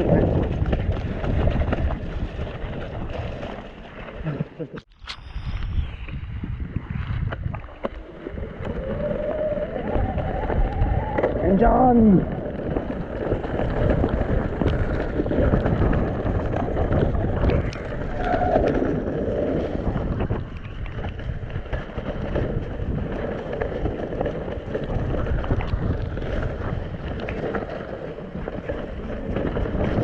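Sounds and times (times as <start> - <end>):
wind buffeting microphone: 0.0 - 4.3, 5.0 - 30.0
bike rattling on rough ground: 0.0 - 30.0.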